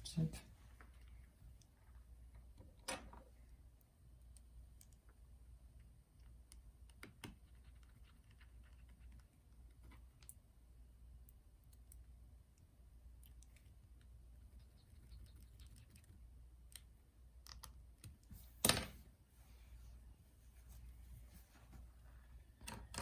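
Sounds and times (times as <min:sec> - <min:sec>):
low room hum: 0:00.0 - 0:23.0
faint small clicks and taps: 0:00.8 - 0:05.2, 0:11.2 - 0:14.2.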